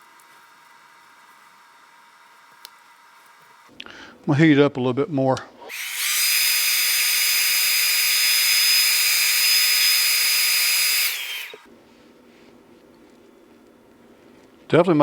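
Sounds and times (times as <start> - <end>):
hairdryer blowing: 5.7 - 11.7.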